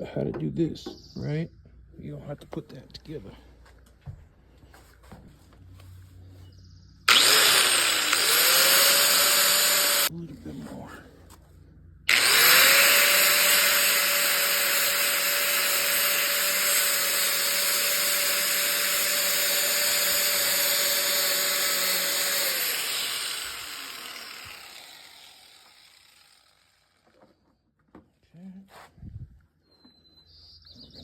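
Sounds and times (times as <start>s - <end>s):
angle grinder whining: 7.1s - 10.1s, 12.1s - 27.5s
grinder hissing on metal: 7.1s - 10.1s, 12.1s - 27.0s.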